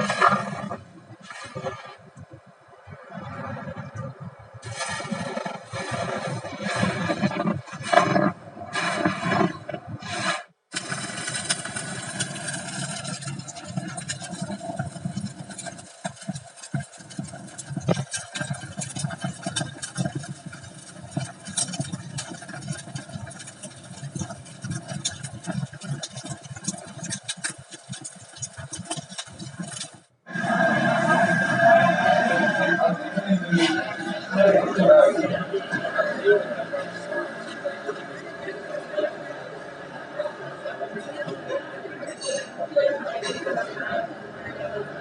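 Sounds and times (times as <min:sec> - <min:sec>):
short crackles and clicks: 0:00.0 - 0:30.2
steady hiss: 0:04.6 - 0:34.2.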